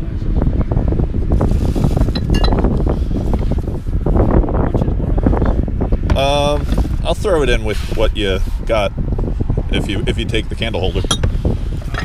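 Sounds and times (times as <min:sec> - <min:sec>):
wind buffeting microphone: 0:00.0 - 0:12.0
drinking glasses clinking: 0:02.2 - 0:02.6.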